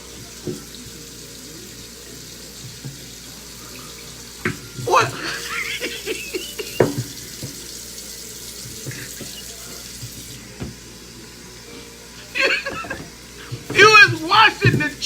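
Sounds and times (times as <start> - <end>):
tap water running into sink: 0.0 - 15.0
knocks and splashes: 6.6 - 7.7.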